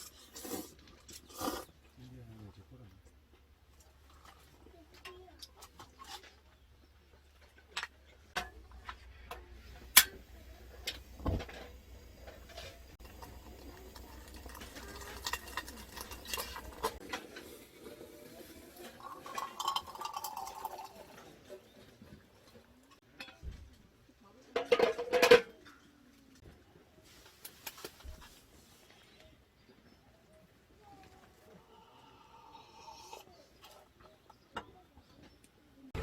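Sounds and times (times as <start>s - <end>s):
cookware clinking and knocking: 10.8s - 17.0s, 19.0s - 21.0s, 24.6s - 25.6s.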